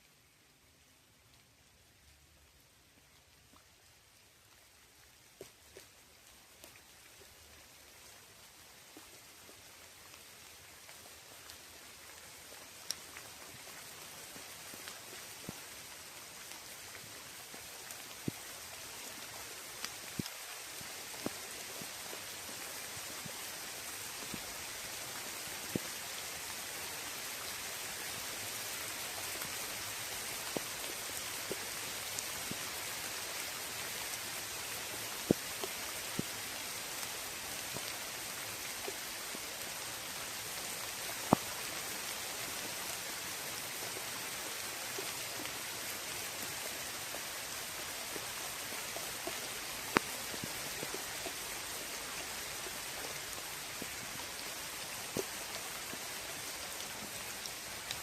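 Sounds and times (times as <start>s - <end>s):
rain falling on a lake: 0.0s - 58.0s
single raindrop ticks: 12.8s - 13.3s, 19.8s - 20.4s, 41.1s - 41.8s, 48.1s - 51.4s.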